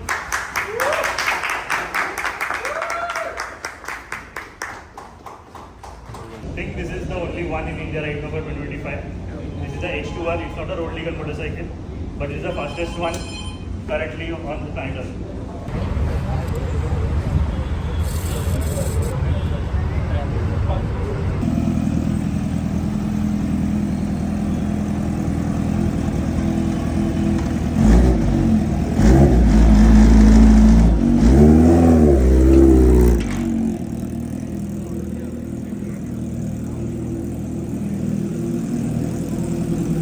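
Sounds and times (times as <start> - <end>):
motorcycle engine idling and revving: 15.7 - 40.0.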